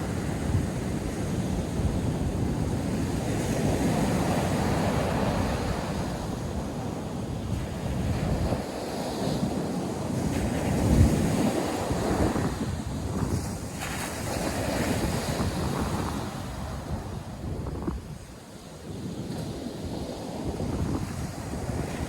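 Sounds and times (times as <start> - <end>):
surf washing onto beach: 0.0 - 22.0
wind buffeting microphone: 0.0 - 22.0.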